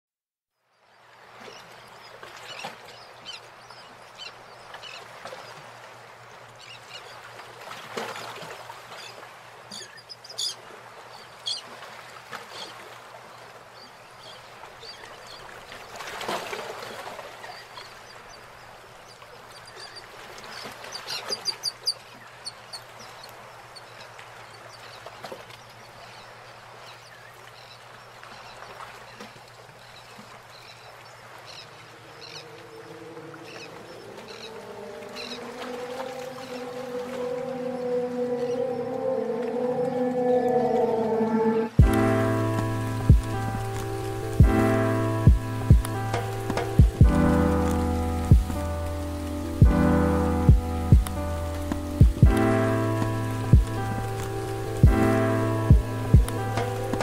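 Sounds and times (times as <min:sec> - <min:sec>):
bird calls: 0:17.4 - 0:29.3, 0:29.9 - 0:41.8
steady outdoor hiss: 0:29.7 - 0:57.0.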